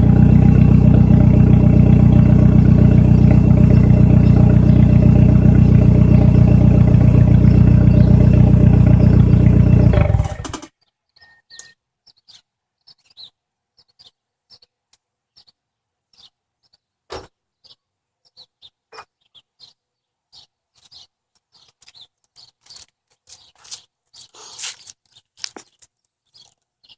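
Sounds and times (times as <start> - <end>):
car exhaust: 0.0 - 10.6
faint high chirps: 11.1 - 11.8.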